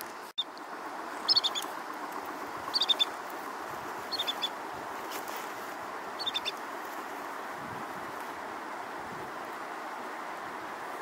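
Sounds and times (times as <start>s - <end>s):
river rushing: 0.0s - 11.0s
bird high piping notes: 1.2s - 1.7s, 2.7s - 3.2s, 4.1s - 4.6s, 6.2s - 6.6s.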